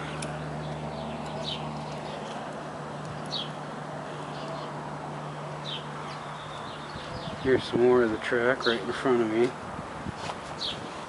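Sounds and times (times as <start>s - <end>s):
small bird chirping: 0.4s - 2.4s, 3.1s - 3.6s, 5.6s - 7.6s.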